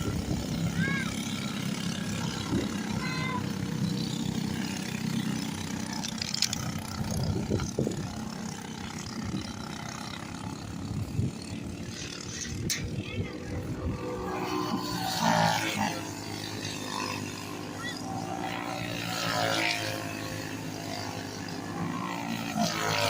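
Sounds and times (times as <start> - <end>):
small racing engines droning: 0.0 - 23.0.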